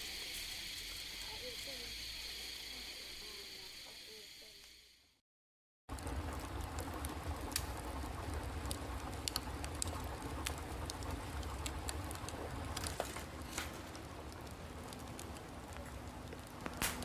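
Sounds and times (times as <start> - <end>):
low continuous rumble: 5.9 - 17.0
scattered ticks and clicks: 5.9 - 17.0.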